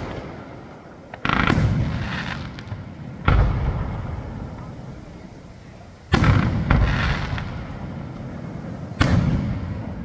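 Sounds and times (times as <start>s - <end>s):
rumble after bangs: 0.0s - 5.2s.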